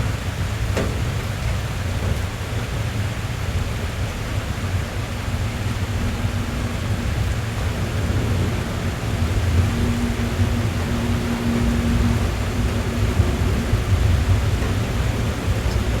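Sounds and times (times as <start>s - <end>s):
rain on car roof: 0.0s - 16.0s.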